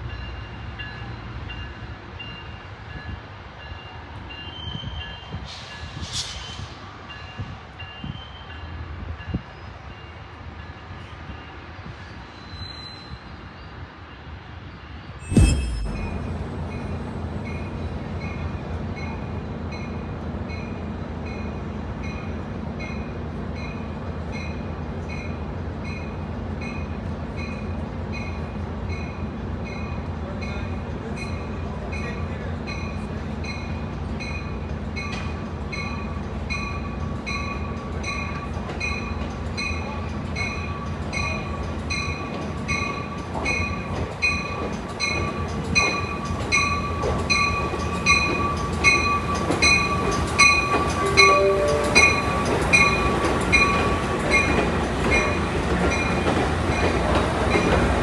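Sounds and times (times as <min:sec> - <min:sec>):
train bell ringing: 0:00.0 - 0:05.9, 0:15.2 - 0:57.8
low rumble of train: 0:00.0 - 0:58.0
high squeal of brakes: 0:04.4 - 0:08.7, 0:12.0 - 0:13.8.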